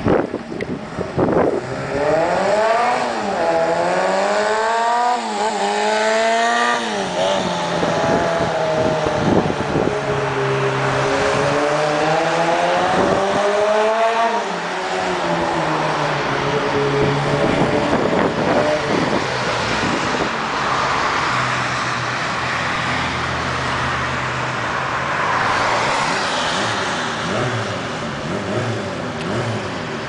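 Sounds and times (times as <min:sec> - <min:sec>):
motorcycle engine revving: 0:01.2 - 0:14.6, 0:26.6 - 0:30.0.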